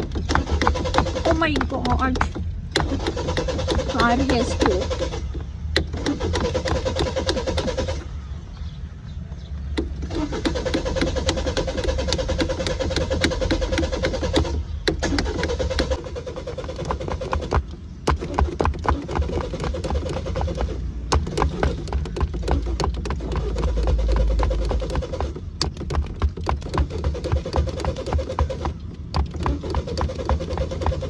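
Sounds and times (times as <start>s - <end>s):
sharp taps: 0.0s - 6.1s
car starter motor cranking: 0.0s - 8.3s, 9.6s - 31.0s.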